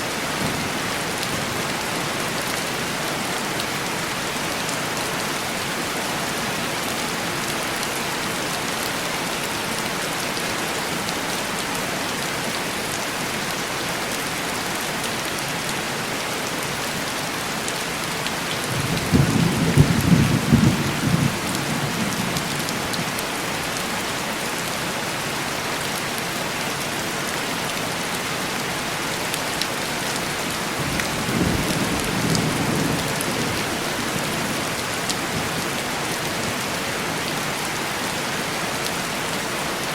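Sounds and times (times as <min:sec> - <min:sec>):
heavy rain on window glass: 0:15.4 - 0:26.1, 0:27.5 - 0:39.9.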